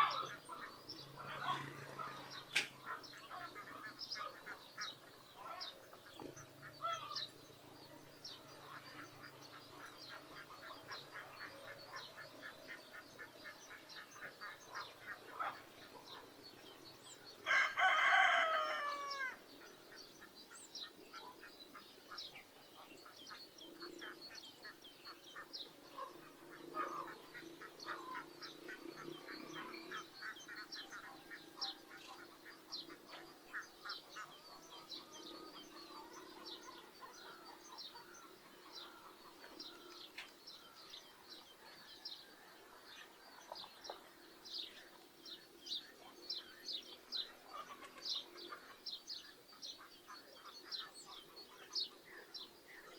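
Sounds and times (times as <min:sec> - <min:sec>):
ducks quacking: 0:00.0 - 0:07.2, 0:08.3 - 0:16.2, 0:19.7 - 0:40.2, 0:47.2 - 0:48.8
small birds chirping: 0:00.0 - 0:52.9
rooster crowing: 0:17.5 - 0:19.4.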